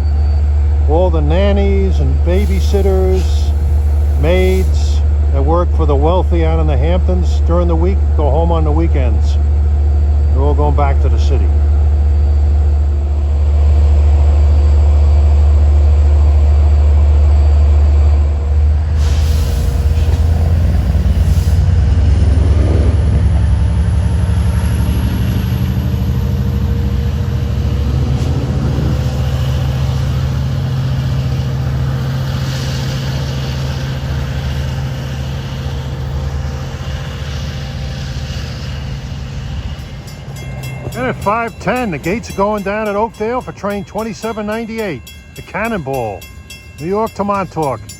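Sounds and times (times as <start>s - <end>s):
diesel locomotive engine: 0.0s - 47.9s
air hiss: 2.3s - 5.0s, 18.9s - 21.8s.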